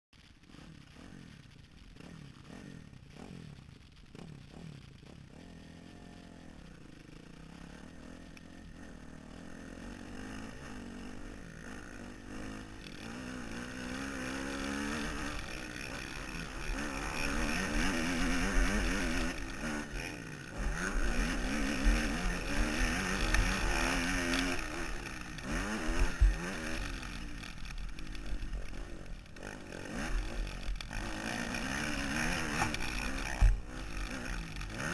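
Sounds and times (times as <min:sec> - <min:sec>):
dirt bike engine revving: 0:00.2 - 0:34.9.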